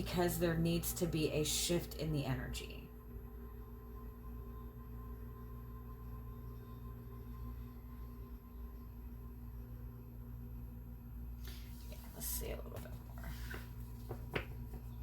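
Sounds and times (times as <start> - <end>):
soft sustained background music: 0.0 - 11.8
low room rumble: 0.0 - 15.0.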